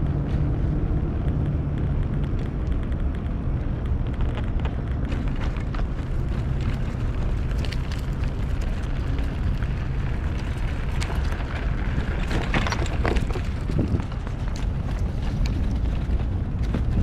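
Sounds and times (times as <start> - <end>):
bicycle tyre noise: 0.0 - 17.0
wind rumbling on microphone: 0.0 - 17.0
small clicks and rattles: 1.2 - 17.0.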